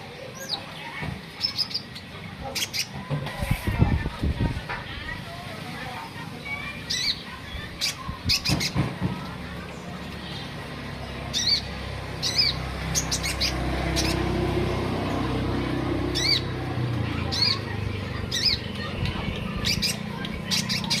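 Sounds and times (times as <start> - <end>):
songbird chirping: 5.8 - 21.0.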